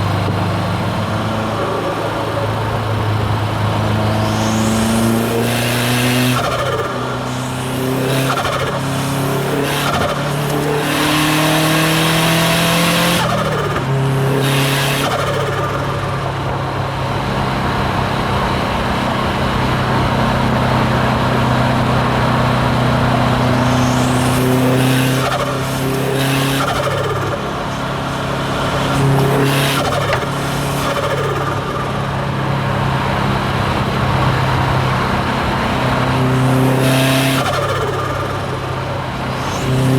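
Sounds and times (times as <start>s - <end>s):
car engine accelerating and shifting: 0.0s - 39.9s.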